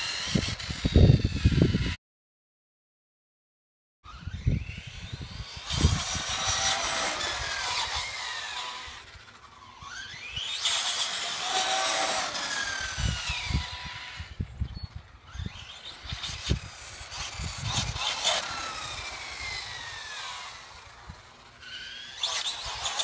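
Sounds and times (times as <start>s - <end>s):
electric motor whining: 0.0s - 2.0s, 4.1s - 23.0s.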